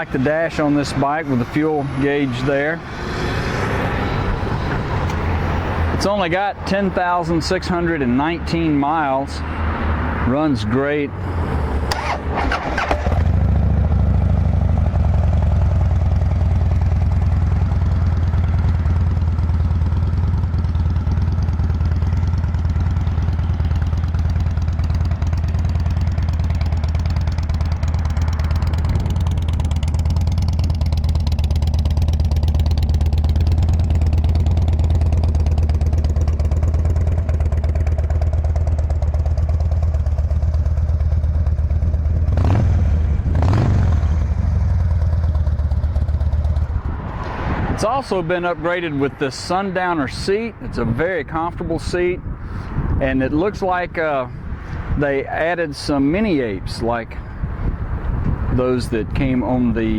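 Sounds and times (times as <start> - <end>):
motorcycle engine idling: 11.9 - 47.1.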